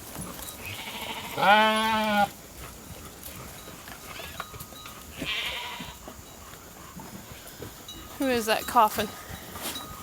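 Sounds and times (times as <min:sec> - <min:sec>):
flock eating grain: 0:00.0 - 0:10.0
sheep bleating: 0:00.6 - 0:02.4, 0:05.2 - 0:06.0.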